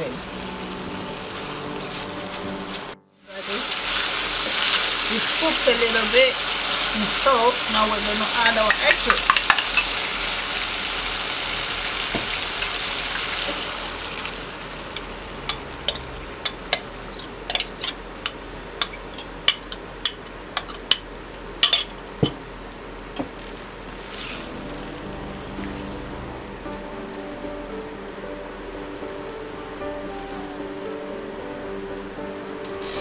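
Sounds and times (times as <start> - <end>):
music: 0.0 - 9.7, 24.0 - 33.0
food sizzling in a frying pan: 0.0 - 16.8, 23.9 - 26.2, 32.6 - 33.0.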